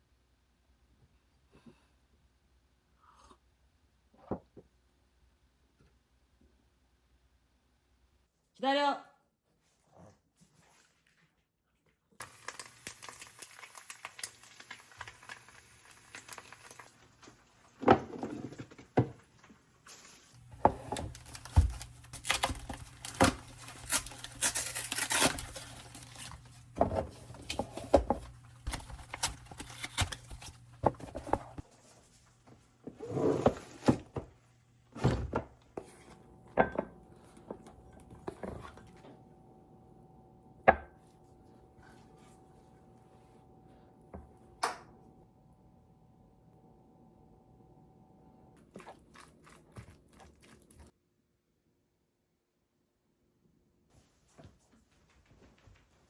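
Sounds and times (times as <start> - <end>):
rustling and tearing: 21.0 - 26.7, 28.2 - 32.3.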